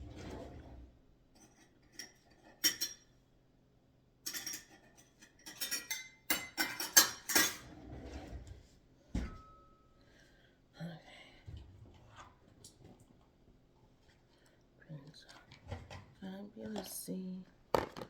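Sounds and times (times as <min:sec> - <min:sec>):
dishes and cutlery clattering: 0:01.4 - 0:03.1, 0:04.2 - 0:07.8.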